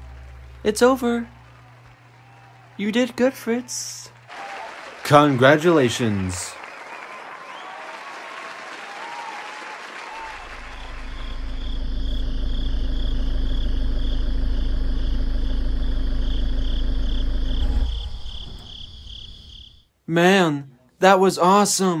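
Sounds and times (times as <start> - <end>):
applause: 0.0 - 11.8
crickets chirping: 10.3 - 19.9
steady low rumble: 10.4 - 19.5.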